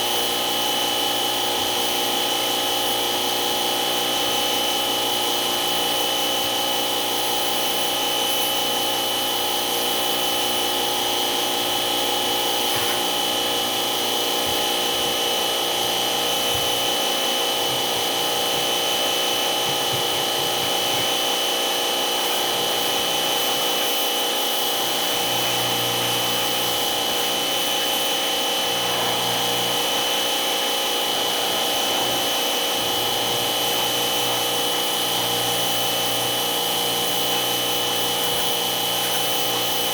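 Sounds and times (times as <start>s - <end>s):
electric motor whining: 10.9s - 39.3s.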